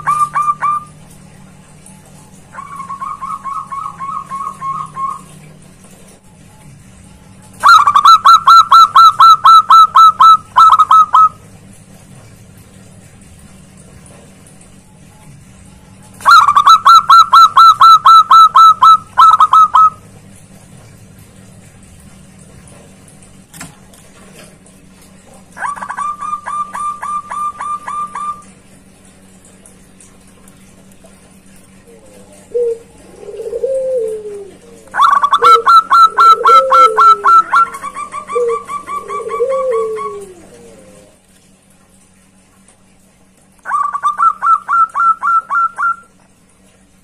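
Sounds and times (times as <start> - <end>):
dove cooing: 0.0 - 1.0, 2.5 - 5.5, 7.6 - 11.4, 16.2 - 20.0, 25.5 - 28.5, 31.8 - 41.2, 43.6 - 46.1.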